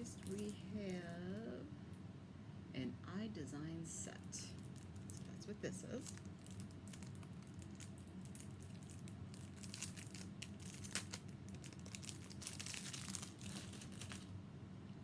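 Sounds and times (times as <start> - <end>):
steady low hum: 0.0 - 15.0
packaging crinkling and tearing: 4.6 - 5.4, 6.0 - 14.4.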